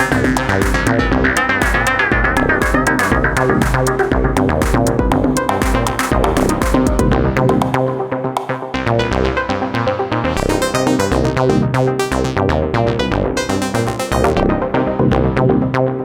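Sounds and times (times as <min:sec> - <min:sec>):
electronic drum beat: 0:00.0 - 0:08.9
synth bass line: 0:00.0 - 0:16.0.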